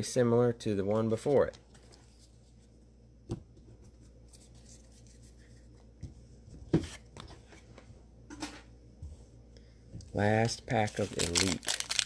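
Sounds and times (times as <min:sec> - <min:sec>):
card packs rustling: 0:10.3 - 0:12.0.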